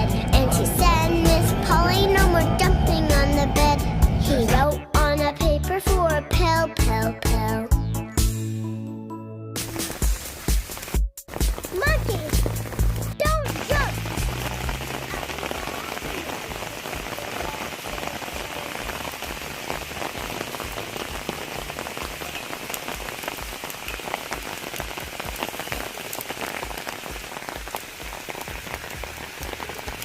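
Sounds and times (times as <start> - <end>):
rain falling: 0.0 - 4.7, 9.6 - 30.0
raindrop hits close by: 9.6 - 30.0.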